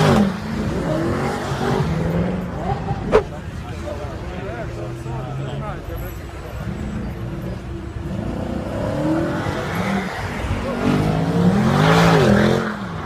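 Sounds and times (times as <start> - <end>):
car engine revving: 6.4 - 13.0.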